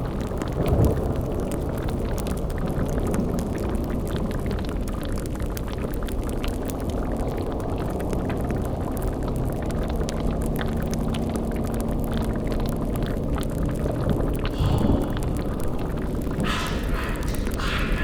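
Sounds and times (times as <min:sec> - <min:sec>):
fire crackling: 0:00.0 - 0:18.0
cauldron bubbling: 0:01.2 - 0:18.0
faint low drone: 0:14.4 - 0:18.0.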